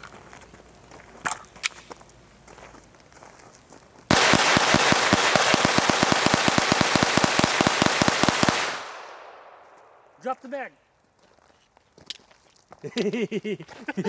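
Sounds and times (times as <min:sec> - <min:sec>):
suppressed pistols rapid fire: 0:04.1 - 0:10.1.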